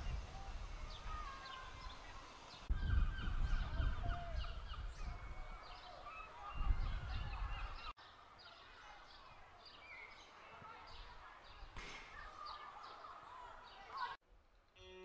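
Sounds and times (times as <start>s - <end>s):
birds calling: 0.0s - 14.2s.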